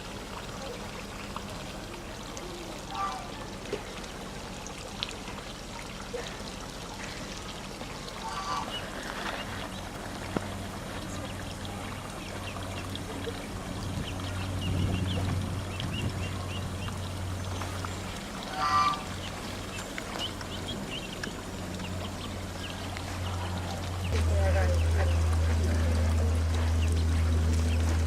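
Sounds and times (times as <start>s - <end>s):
low steady hum: 0.0s - 28.0s
pouring trickling water: 0.0s - 28.0s
ducklings peeping: 8.2s - 10.1s, 11.0s - 28.0s.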